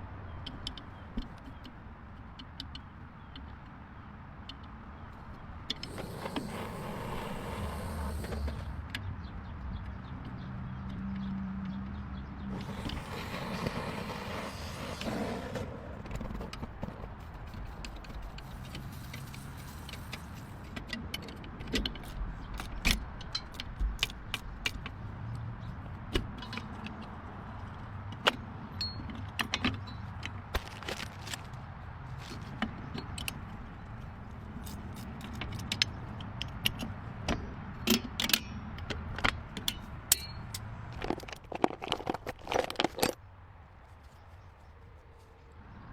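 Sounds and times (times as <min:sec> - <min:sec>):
metallic clicks and clinks: 0:28.1 - 0:30.4, 0:37.8 - 0:43.2.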